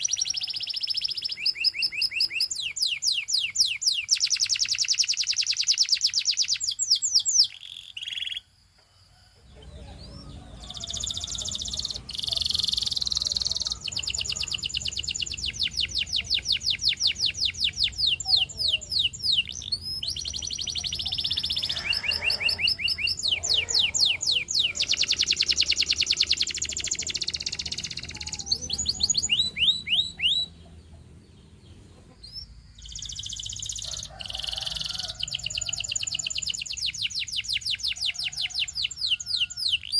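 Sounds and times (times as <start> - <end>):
canary singing in fast trills: 0.0 - 8.6, 9.2 - 39.9.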